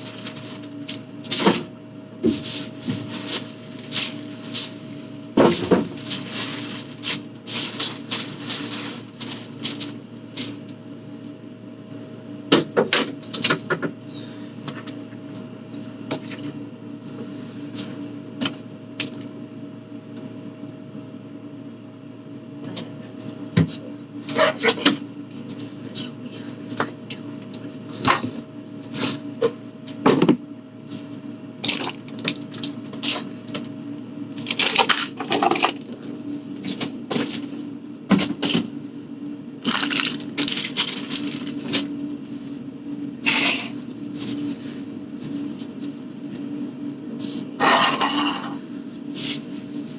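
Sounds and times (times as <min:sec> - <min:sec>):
crinkling rustles: 0:00.0 - 0:01.6, 0:02.3 - 0:10.8, 0:39.6 - 0:42.6, 0:49.1 - 0:49.9
food packages being handled: 0:00.0 - 0:01.7, 0:02.3 - 0:10.7, 0:39.6 - 0:42.5
steady low hum: 0:00.0 - 0:49.9.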